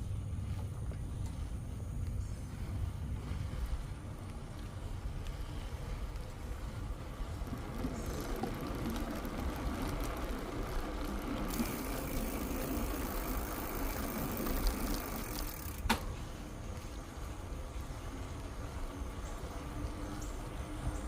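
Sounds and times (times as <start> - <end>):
bicycle tyres rumbling on trail: 0.0 - 21.0.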